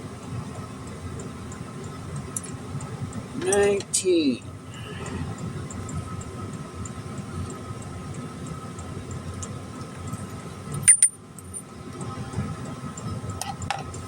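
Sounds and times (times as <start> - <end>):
sharp metallic clinks: 10.1 - 11.7.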